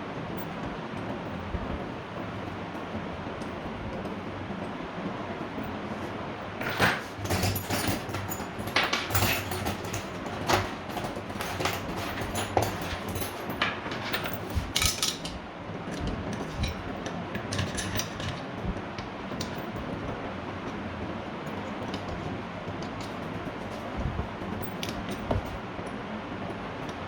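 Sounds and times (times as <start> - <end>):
metal parts clinking: 6.6 - 18.5.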